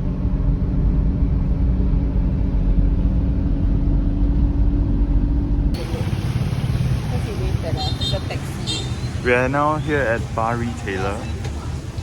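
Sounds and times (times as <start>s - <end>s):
vehicle low rumble: 0.0s - 12.0s.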